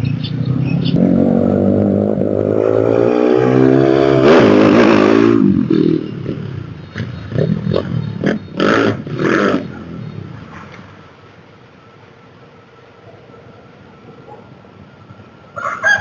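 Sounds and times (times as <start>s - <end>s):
vehicle engine revving: 0.0s - 10.6s.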